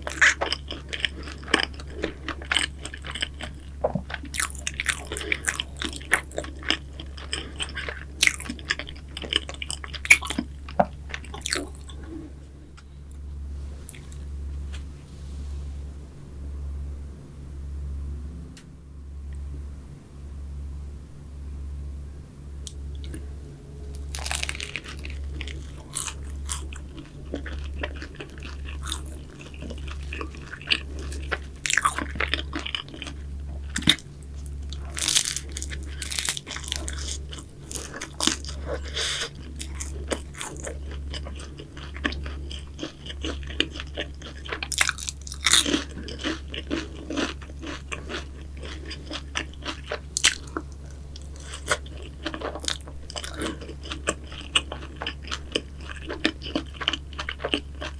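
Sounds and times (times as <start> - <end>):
crunching bites of pastry: 0.0 - 12.1, 24.0 - 57.9.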